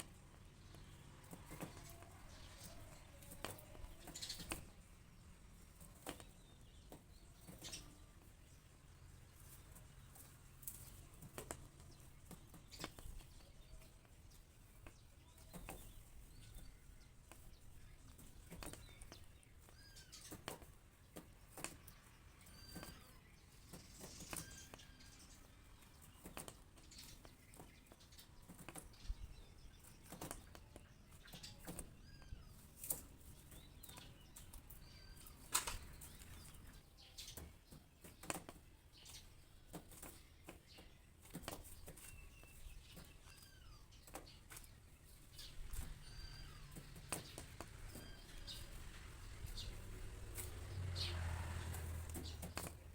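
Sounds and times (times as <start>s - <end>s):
faint bird chirps: 0.0s - 4.9s, 12.6s - 20.7s, 21.5s - 38.2s, 39.0s - 50.5s.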